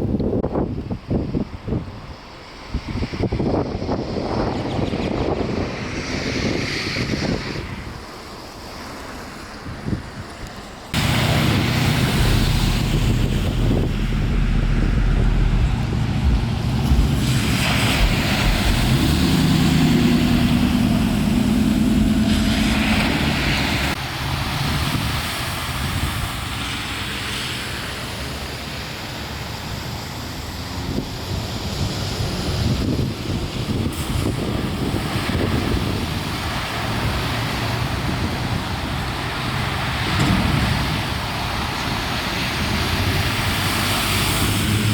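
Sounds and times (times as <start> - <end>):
wind noise on microphone: 0.0 - 44.9
rushing splashing water: 4.1 - 44.9
vehicle engine running: 11.0 - 24.0.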